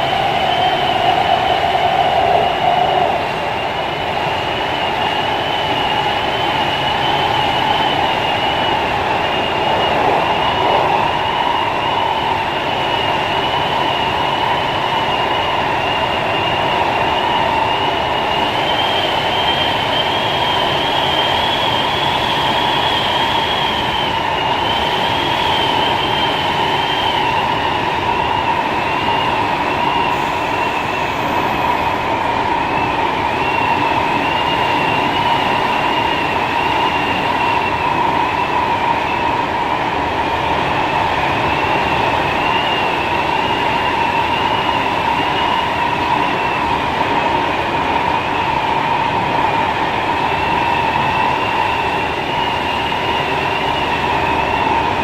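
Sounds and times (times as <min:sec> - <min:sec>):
high wavering squeal: 0:00.0 - 0:38.6
metro train rumbling: 0:00.0 - 0:55.0.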